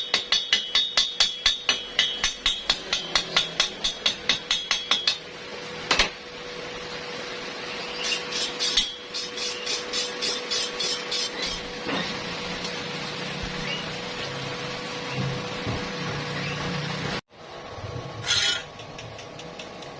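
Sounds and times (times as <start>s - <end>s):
hammer tapping on steel: 0.0s - 5.3s.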